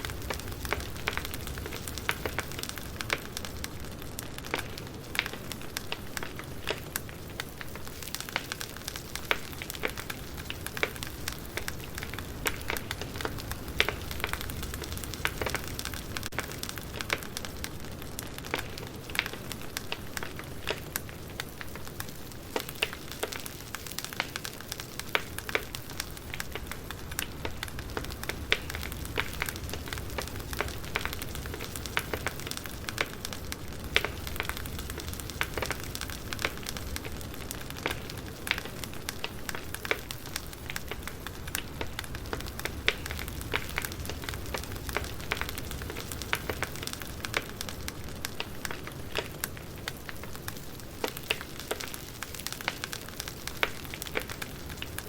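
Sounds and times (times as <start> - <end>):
steady low hiss: 0.0 - 55.0
wood fire crackling: 0.0 - 55.0.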